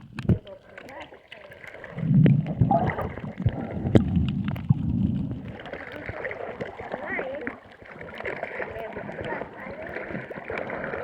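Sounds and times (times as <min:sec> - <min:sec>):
water sloshing around boat: 0:05.6 - 0:11.0.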